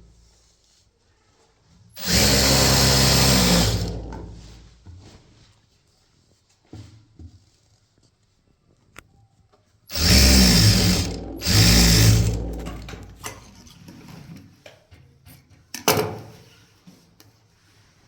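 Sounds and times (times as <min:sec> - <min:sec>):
sewing machine stitching: 0:02.0 - 0:04.7, 0:09.9 - 0:13.7.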